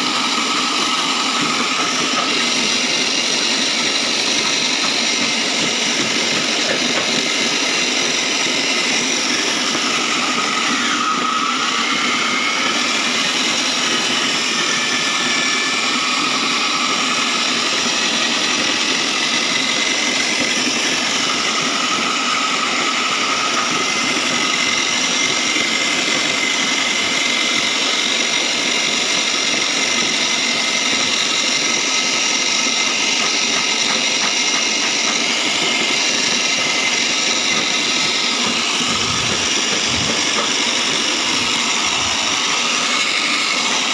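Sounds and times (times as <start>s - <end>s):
shredding machine whining: 0.0s - 43.9s.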